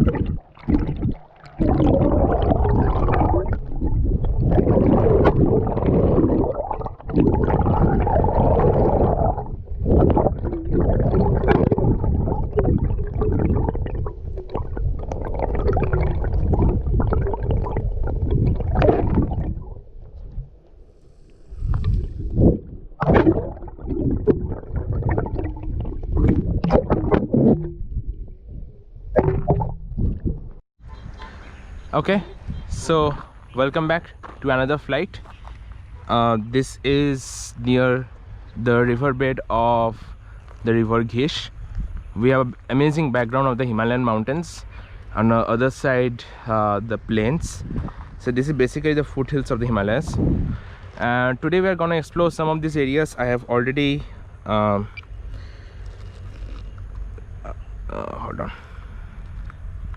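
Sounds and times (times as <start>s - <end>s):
sharp water splashing: 0.0s - 19.8s, 21.8s - 30.5s
river water gurgling and rushing: 0.0s - 20.2s, 22.3s - 27.8s.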